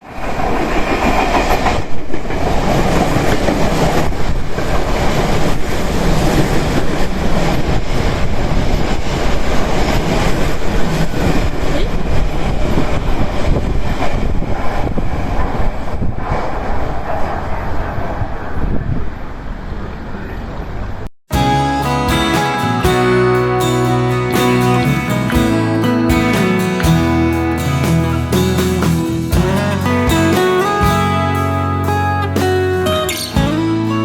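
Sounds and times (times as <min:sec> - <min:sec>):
wheels clacking over rail joints: 0:00.1 - 0:13.2
electric train passing: 0:00.1 - 0:34.0.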